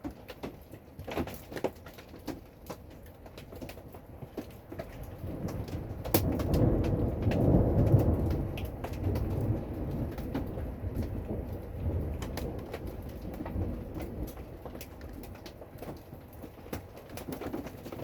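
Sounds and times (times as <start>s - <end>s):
raindrops ticking: 0.0s - 18.0s
rolling thunder: 5.1s - 14.7s.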